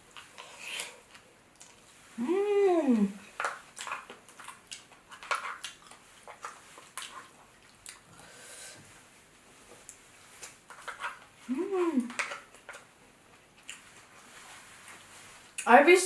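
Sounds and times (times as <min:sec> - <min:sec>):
close chewing with wet smacks: 0:00.0 - 0:02.1, 0:03.3 - 0:08.1, 0:12.0 - 0:14.3.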